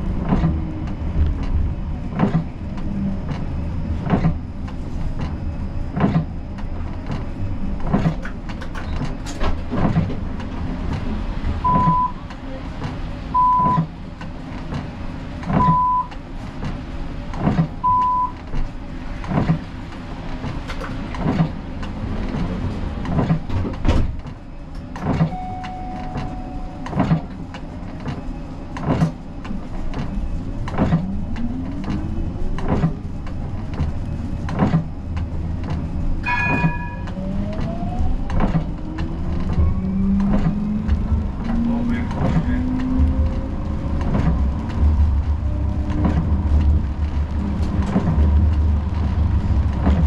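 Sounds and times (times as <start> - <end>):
short electronic beeps: 11.7 - 12.2, 13.4 - 13.9, 25.3 - 26.8
tram motor whine rising: 25.3 - 50.0.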